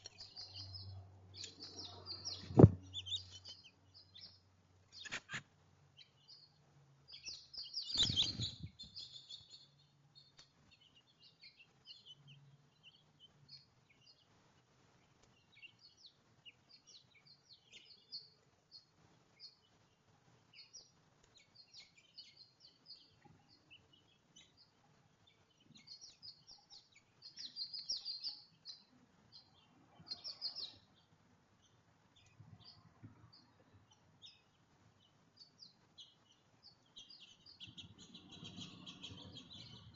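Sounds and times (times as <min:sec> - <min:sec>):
small songbirds chirping: 0:00.0 - 0:39.9
thump: 0:02.4 - 0:02.8.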